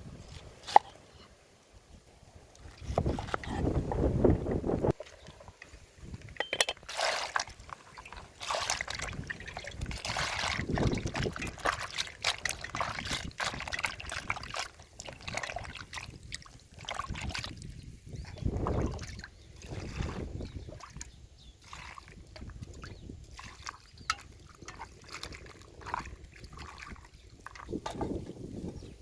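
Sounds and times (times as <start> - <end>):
water trickling and splashing: 0.1 - 29.0
clicks and knocks: 6.4 - 6.8.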